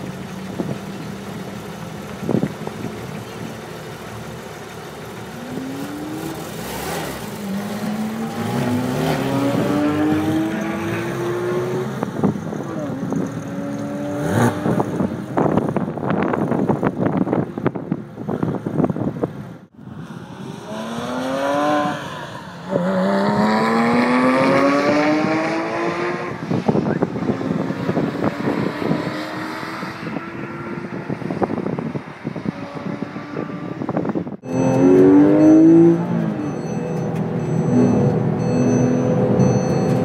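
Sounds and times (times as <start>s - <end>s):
wind buffeting microphone: 0.0s - 3.6s, 7.2s - 19.6s, 23.2s - 34.4s
sports car engine accelerating: 0.0s - 17.3s, 19.8s - 40.0s.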